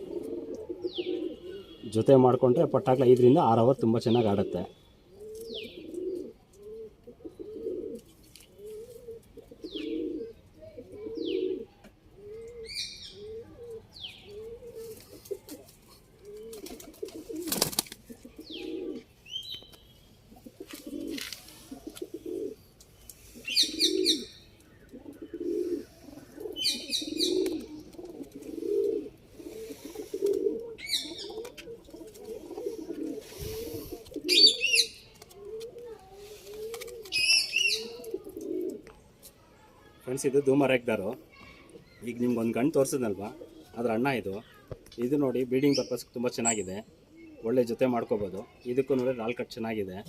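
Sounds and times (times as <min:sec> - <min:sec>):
pigeons cooing: 0:00.0 - 0:19.1, 0:20.3 - 0:39.0, 0:41.6 - 0:44.4
small birds chirping: 0:00.0 - 0:50.0.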